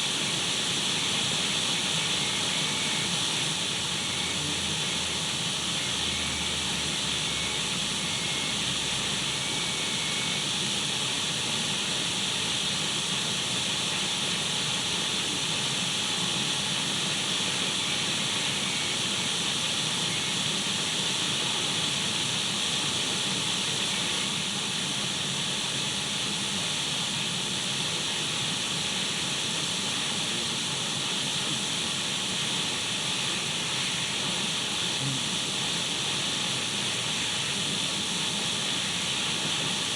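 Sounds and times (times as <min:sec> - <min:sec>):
radio static hiss: 0:01.0 - 0:07.6, 0:29.8 - 0:39.9.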